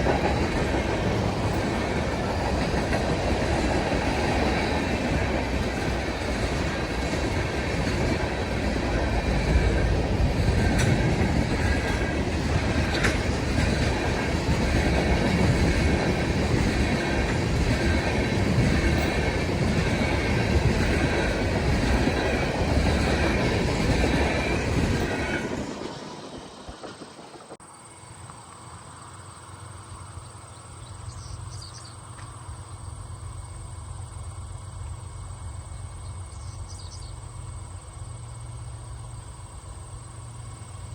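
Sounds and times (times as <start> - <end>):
high squeal of train wheels: 0.0 - 27.6
railroad wheels clattering on rail: 0.0 - 27.6
insects chirring: 0.0 - 40.9.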